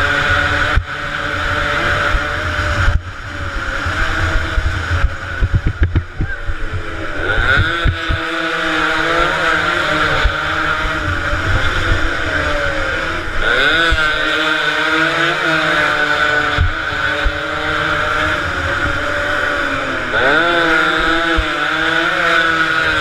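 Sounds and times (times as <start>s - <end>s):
motorcycle engines revving: 0.0s - 23.0s.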